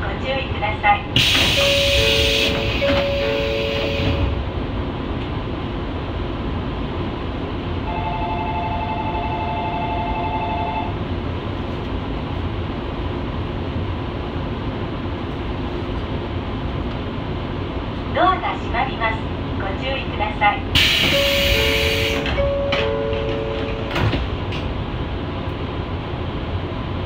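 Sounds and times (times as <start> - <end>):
electric train rumbling: 0.0 - 27.0.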